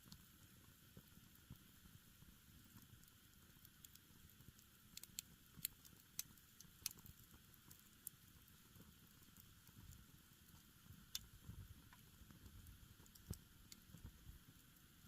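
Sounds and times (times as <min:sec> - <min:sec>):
campfire crackling: 0:00.0 - 0:15.0
sharp pops from burning wood: 0:02.7 - 0:14.3.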